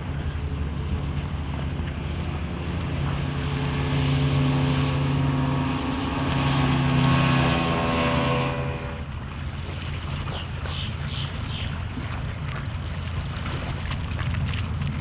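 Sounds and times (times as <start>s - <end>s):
outboard motor running: 0.0s - 15.0s
water and wind rush: 0.0s - 15.0s.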